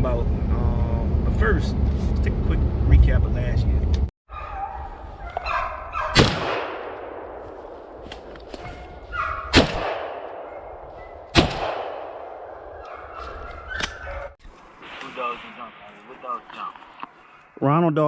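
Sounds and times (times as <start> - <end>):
shotgun shots: 6.1 - 8.0, 9.5 - 10.6, 11.2 - 12.5
long rolling echo: 6.4 - 8.0, 9.8 - 13.2, 14.7 - 17.5.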